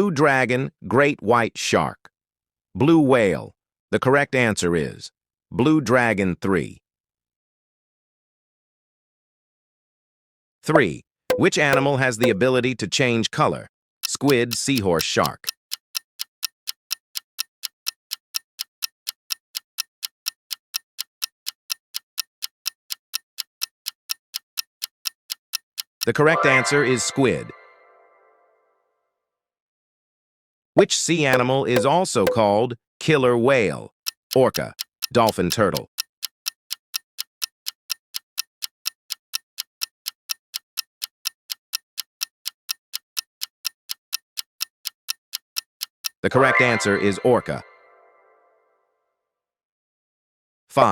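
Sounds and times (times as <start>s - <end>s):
countdown timer ticking: 11.3s - 12.5s, 14.0s - 27.8s, 31.3s - 32.6s, 34.0s - 48.3s.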